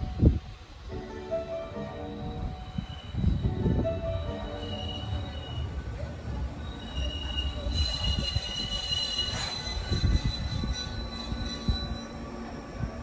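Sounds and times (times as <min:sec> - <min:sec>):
train wheels rumbling on rail: 0:00.0 - 0:13.0
high brake squeal: 0:04.3 - 0:12.6.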